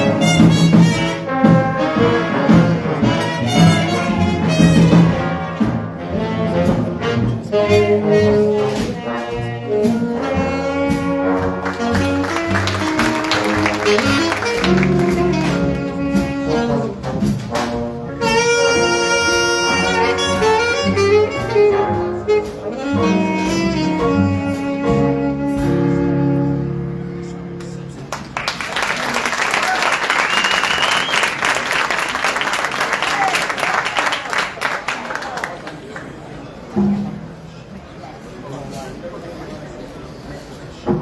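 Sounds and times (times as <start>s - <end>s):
cymbals: 0.0s - 27.9s
brass held chords: 0.0s - 28.5s
jazz big band playing: 0.0s - 35.6s.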